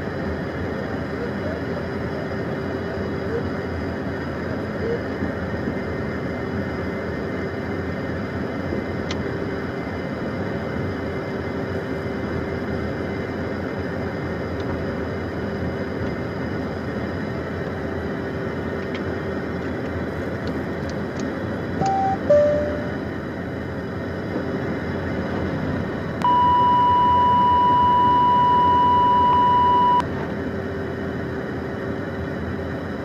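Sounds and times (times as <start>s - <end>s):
jet cockpit hum: 8.7s - 33.0s
two-note electronic chime: 21.8s - 23.0s.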